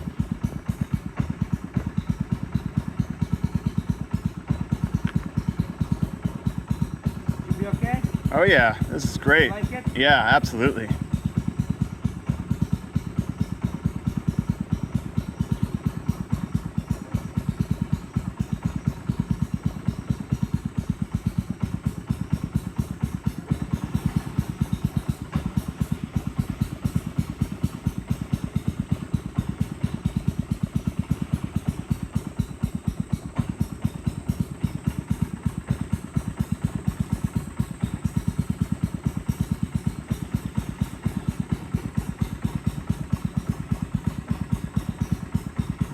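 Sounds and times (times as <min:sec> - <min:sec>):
small boat engine running: 0:00.0 - 0:45.9.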